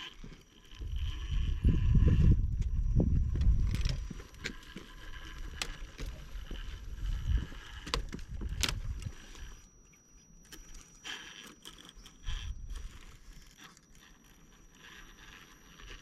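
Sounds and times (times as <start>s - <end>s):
electric motor whining: 0.0s - 16.0s
low wind rumble: 0.7s - 9.6s
clicks and knocks on rock: 3.3s - 9.1s.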